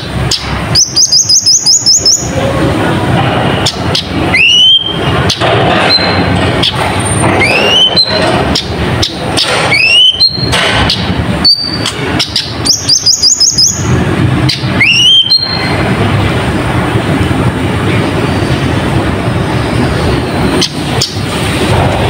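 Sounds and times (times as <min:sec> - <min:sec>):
sunbird singing: 0:00.0 - 0:02.6, 0:03.6 - 0:05.4, 0:07.4 - 0:15.8
steady low rumble: 0:02.1 - 0:09.7, 0:10.3 - 0:22.0.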